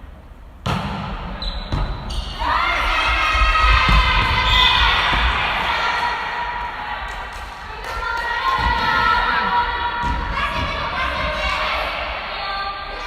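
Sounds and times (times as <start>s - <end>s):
volleyball hits: 0.6s - 2.4s.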